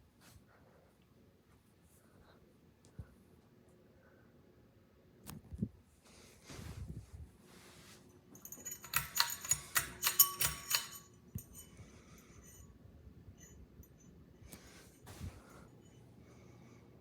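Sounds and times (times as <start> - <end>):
metallic clicks and jangling: 8.4 - 12.8.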